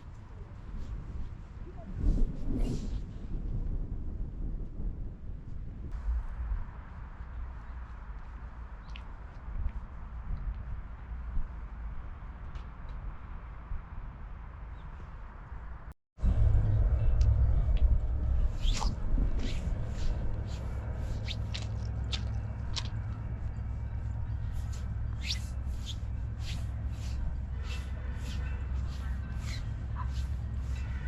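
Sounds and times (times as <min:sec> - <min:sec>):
steady low rumble: 0:00.0 - 0:14.6, 0:15.2 - 0:31.0
small birds chirping: 0:18.5 - 0:22.9, 0:24.2 - 0:31.0.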